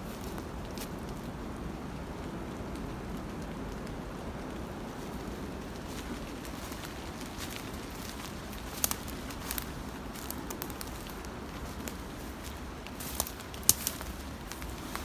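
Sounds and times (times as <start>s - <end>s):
twigs crackling underfoot: 0.0s - 1.3s, 4.6s - 15.0s
loud twig snaps: 13.1s - 14.8s.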